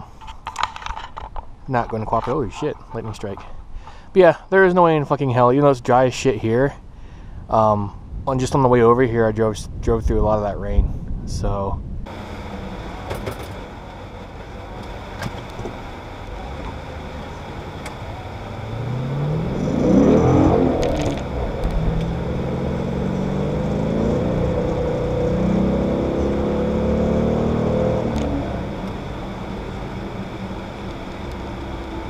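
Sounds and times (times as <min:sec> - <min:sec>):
car engine accelerating: 0:12.1 - 0:32.0.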